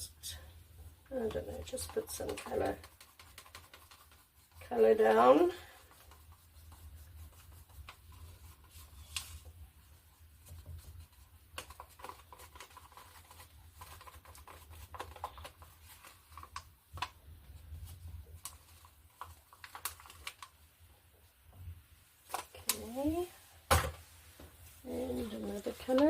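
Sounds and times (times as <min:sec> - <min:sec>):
paint bottles and cups handled: 0:01.2 - 0:20.7, 0:23.6 - 0:26.0.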